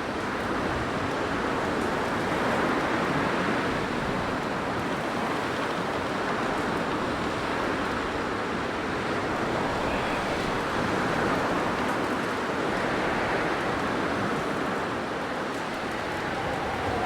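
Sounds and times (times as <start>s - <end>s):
blizzard wind blowing: 6.4s - 17.0s.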